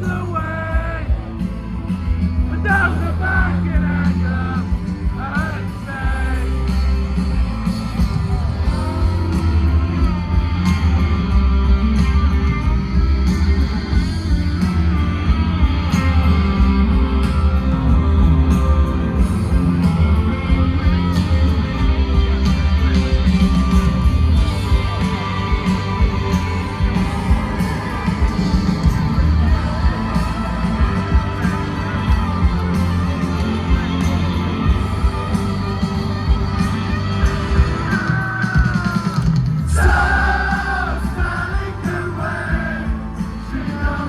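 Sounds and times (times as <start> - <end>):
rock band playing loudly: 0.0 - 44.0
person singing: 2.5 - 6.7, 37.2 - 44.0.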